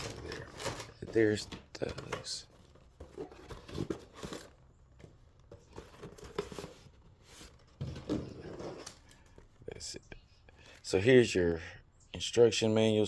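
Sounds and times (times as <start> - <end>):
packaging rustling and crinkling: 0.0 - 9.3.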